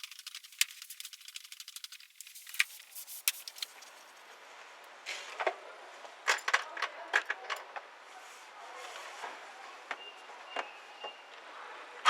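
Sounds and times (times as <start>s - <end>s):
metallic clicking and rattling: 0.0s - 4.1s
soft hiss: 0.0s - 4.9s.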